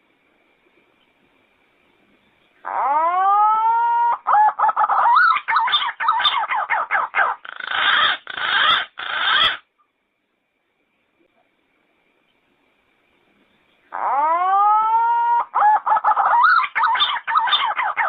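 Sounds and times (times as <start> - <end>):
pigeon singing: 2.6 - 9.6, 13.9 - 18.0.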